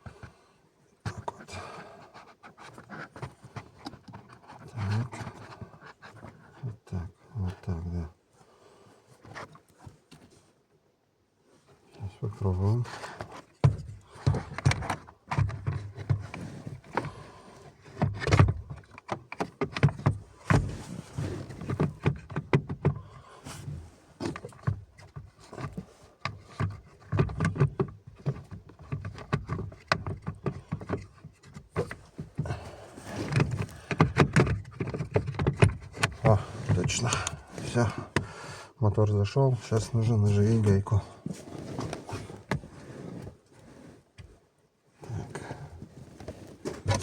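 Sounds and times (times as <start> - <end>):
fan motor knocking and scraping: 24.2 - 38.4.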